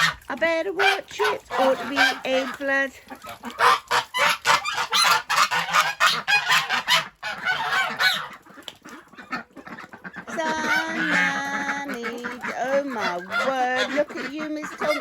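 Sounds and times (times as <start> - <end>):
ducks quacking: 0.0 - 15.0
drawn-out pitched duck call: 3.5 - 15.0.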